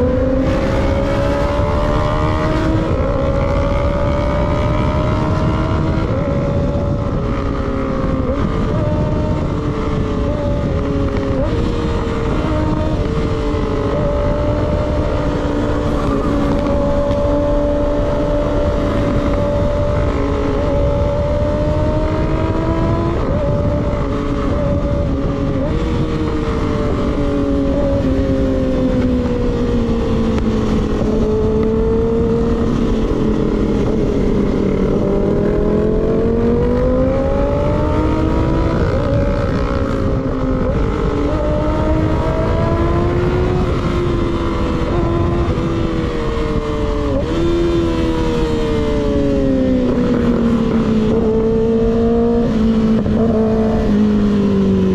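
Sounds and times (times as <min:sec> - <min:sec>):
motorcycle engine cruising: 0:00.0 - 0:54.9
wind noise on microphone: 0:00.0 - 0:54.9.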